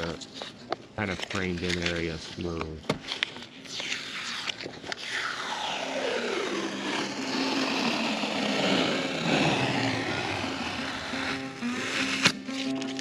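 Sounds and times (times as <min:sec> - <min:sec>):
aircraft passing by: 0:05.0 - 0:12.1.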